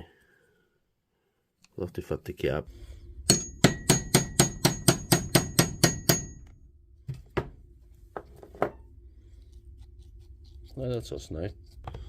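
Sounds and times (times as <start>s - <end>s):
small hammer tapping metal: 3.3s - 6.6s.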